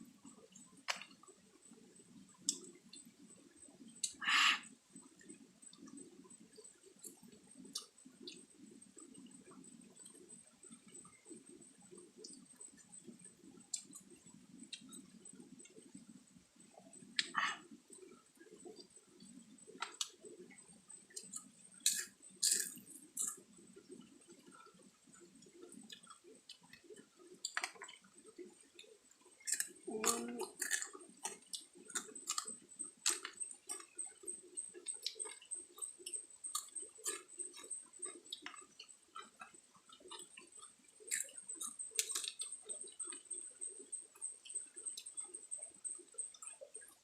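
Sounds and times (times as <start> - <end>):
person chewing: 21.2 - 23.4, 28.8 - 34.2, 34.8 - 43.2.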